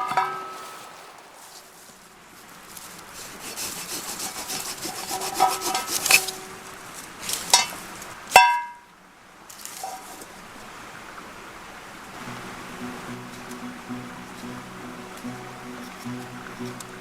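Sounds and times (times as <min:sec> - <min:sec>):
hand saw cutting wood: 0:03.1 - 0:06.6.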